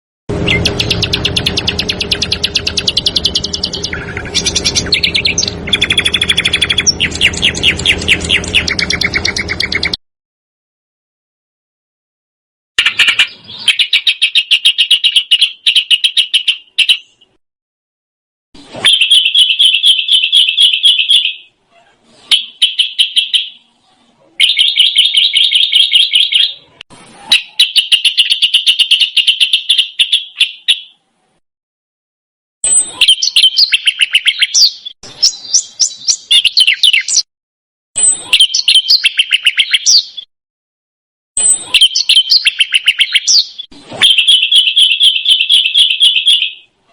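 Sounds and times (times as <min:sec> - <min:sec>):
songbird trilling: 0:00.4 - 0:10.0.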